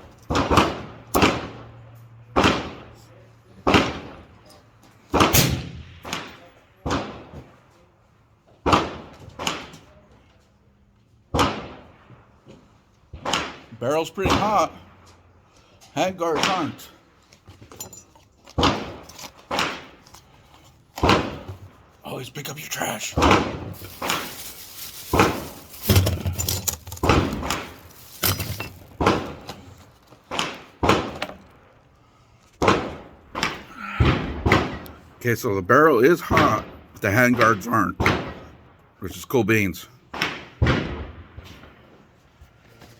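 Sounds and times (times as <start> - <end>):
rifle shots with echo: 5.1 - 7.4, 40.1 - 41.8.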